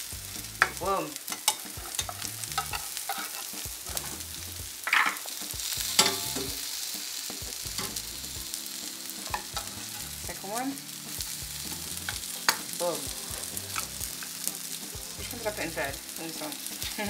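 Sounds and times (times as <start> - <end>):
patties sizzling in oil: 0.0 - 17.0.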